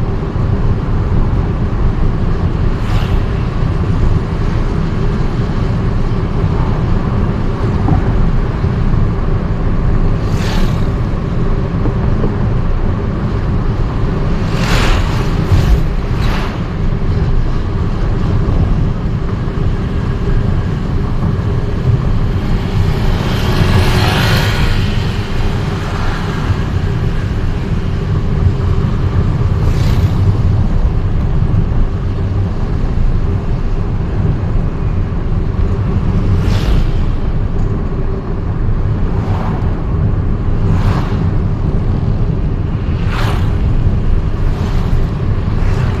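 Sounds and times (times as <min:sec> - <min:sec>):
vehicle road and engine rumble: 0:00.0 - 0:46.0
vehicle passing: 0:14.0 - 0:17.4, 0:21.6 - 0:28.0, 0:38.4 - 0:46.0.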